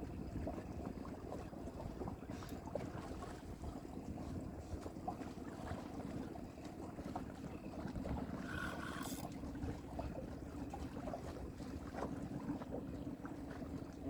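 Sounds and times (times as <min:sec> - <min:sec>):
water against boat: 0:00.0 - 0:14.0.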